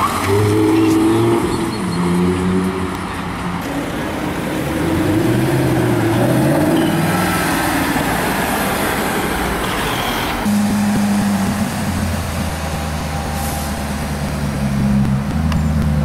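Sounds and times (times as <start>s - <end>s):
road noise: 0.0s - 16.0s
car engine running: 10.4s - 16.0s.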